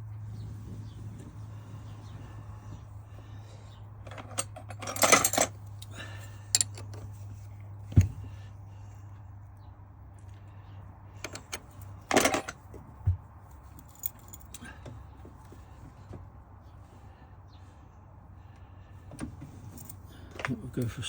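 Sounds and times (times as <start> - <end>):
metal tools clinking: 4.0 - 7.3, 11.2 - 12.6.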